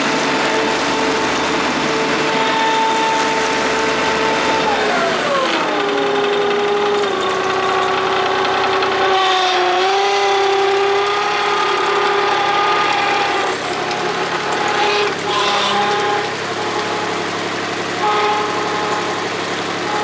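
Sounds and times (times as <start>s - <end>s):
diesel engine running: 0.0s - 20.0s
vacuum sweeper whine: 0.0s - 20.0s.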